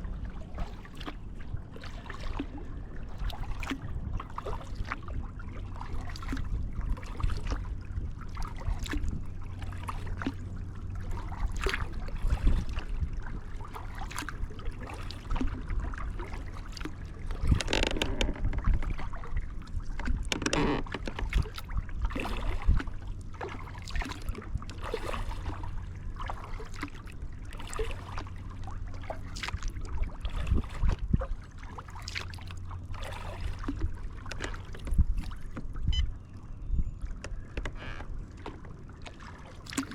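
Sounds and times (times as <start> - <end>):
low rumble: 0.0 - 27.6
paddle splashing in water: 0.0 - 36.4, 37.0 - 39.9.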